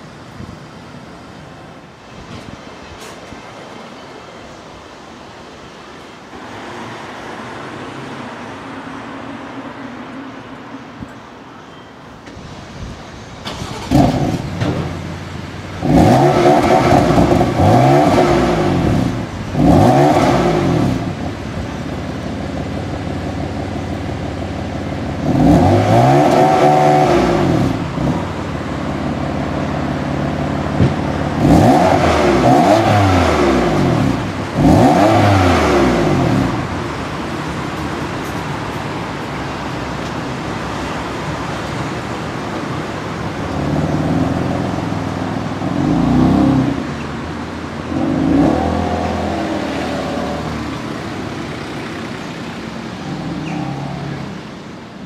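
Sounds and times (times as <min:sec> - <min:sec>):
car engine starting and idling: 0:12.2 - 0:55.0
engine revving: 0:13.5 - 0:15.0, 0:15.7 - 0:21.4, 0:25.1 - 0:28.6, 0:31.2 - 0:37.6, 0:45.6 - 0:47.1, 0:47.8 - 0:54.3.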